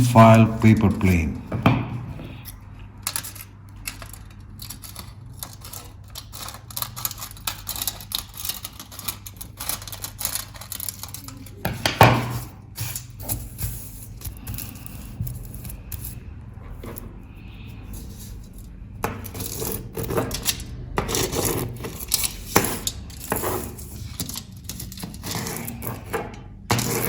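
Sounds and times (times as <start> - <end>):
aluminium foil crinkling: 3.1 - 11.6.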